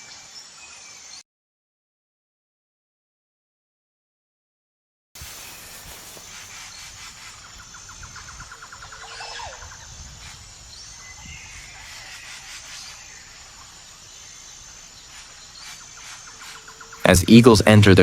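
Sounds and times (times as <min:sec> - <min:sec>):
birds trilling: 0:05.2 - 0:18.0
soft background hiss: 0:05.2 - 0:18.0.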